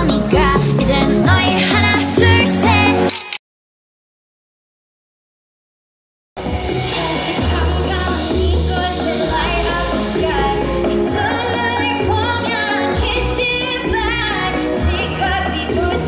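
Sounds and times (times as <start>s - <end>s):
woman singing: 0.0s - 3.1s, 6.7s - 16.0s
heavy pulsing bass beat: 6.4s - 12.4s.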